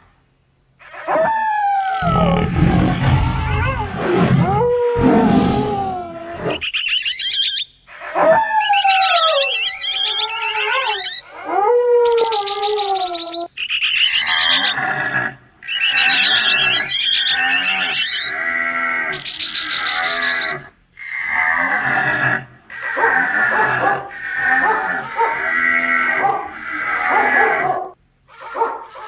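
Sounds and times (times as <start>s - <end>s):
big cat roaring: 2.0s - 6.6s
gliding wavering animal call: 2.0s - 7.5s.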